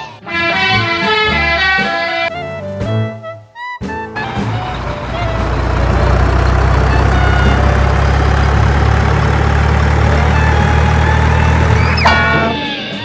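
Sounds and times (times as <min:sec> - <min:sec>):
heavy vehicle engine rumbling: 0:03.8 - 0:13.0.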